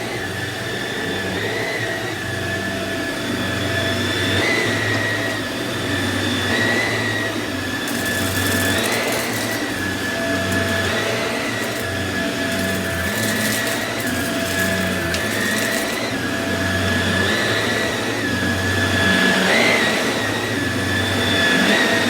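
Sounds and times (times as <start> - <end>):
upright vacuum running: 0.0 - 22.0
rice clicking in vacuum: 7.8 - 16.4.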